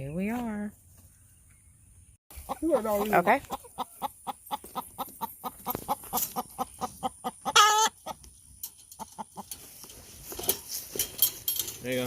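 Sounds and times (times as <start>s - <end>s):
chickens clucking: 2.3s - 10.8s
chicken squawk: 2.4s - 8.2s.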